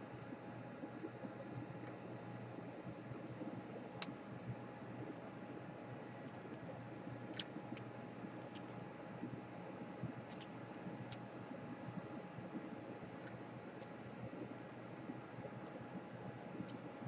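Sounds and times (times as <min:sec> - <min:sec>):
steady low hum: 0:00.0 - 0:17.0
small parts and tools clicking: 0:06.2 - 0:08.9, 0:10.3 - 0:11.2.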